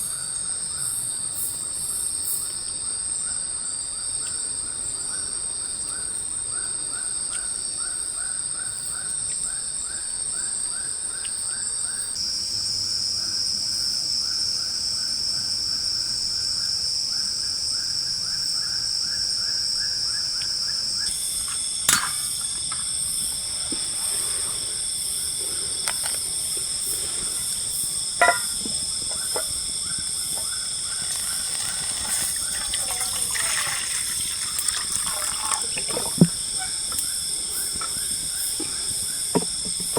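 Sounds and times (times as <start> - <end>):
high-pitched insect drones: 0.0 - 39.9
rhythmic insect chirping: 0.0 - 39.9.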